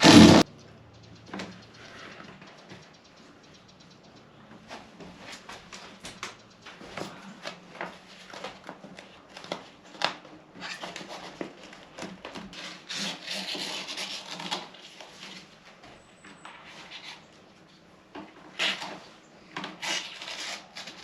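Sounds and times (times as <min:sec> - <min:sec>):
rubbing and scraping: 0:00.0 - 0:00.5.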